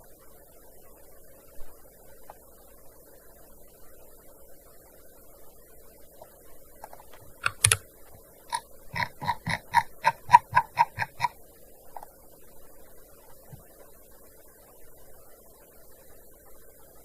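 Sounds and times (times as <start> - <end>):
keyboard key clicks: 7.4 - 7.8, 9.0 - 11.3.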